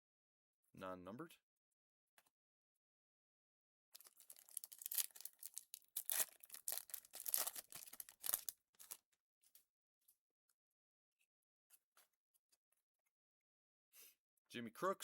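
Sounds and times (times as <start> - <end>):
plastic packaging crinkling: 4.0 - 9.0.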